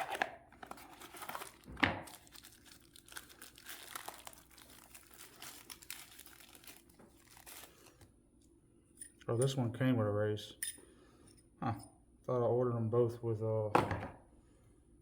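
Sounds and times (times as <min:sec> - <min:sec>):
packaging crinkling and tearing: 0:00.0 - 0:08.1.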